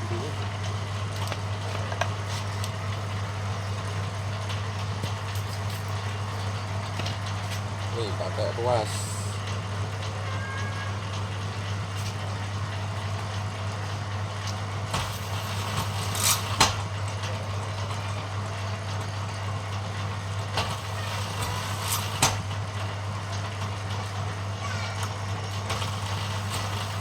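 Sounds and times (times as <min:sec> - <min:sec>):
machine humming: 0:06.0 - 0:10.0, 0:11.0 - 0:18.8, 0:19.5 - 0:23.9, 0:25.6 - 0:27.0.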